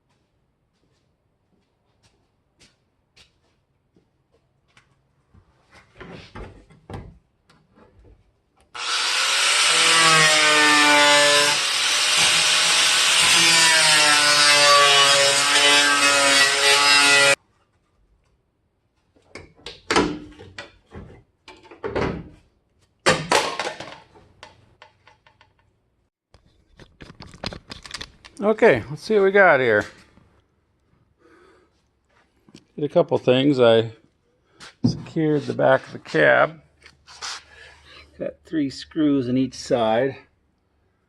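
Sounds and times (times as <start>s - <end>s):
power saw cutting sheet metal: 8.8s - 17.4s.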